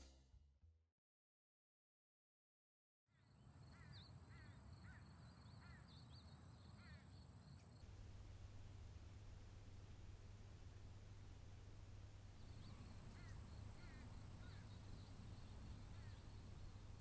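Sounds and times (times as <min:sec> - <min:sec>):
bird chirping: 0:03.2 - 0:07.8, 0:12.4 - 0:17.0.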